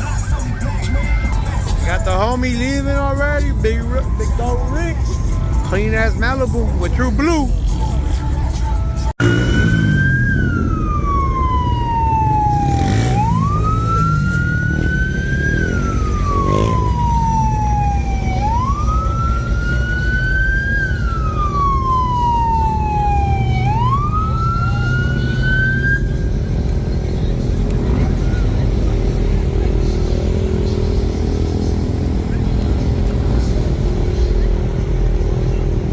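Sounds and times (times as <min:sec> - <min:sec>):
emergency siren wailing: 0:00.0 - 0:27.0
car engines rumbling: 0:00.0 - 0:35.9.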